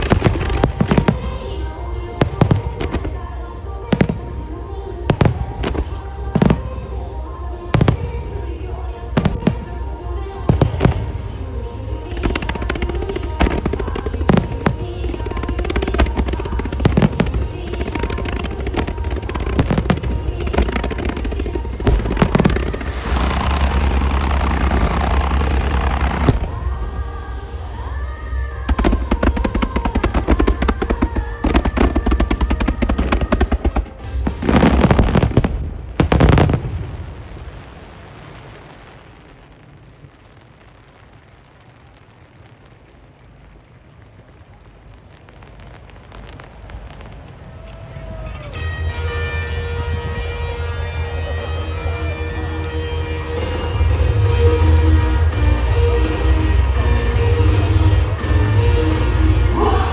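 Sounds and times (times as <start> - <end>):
pop song over loudspeakers: 0.0 - 22.7, 57.8 - 59.9
firework shells booming: 0.0 - 27.7, 28.4 - 37.8, 41.0 - 59.9
dense crackle of small reports: 0.0 - 59.9
faint music: 0.0 - 59.9.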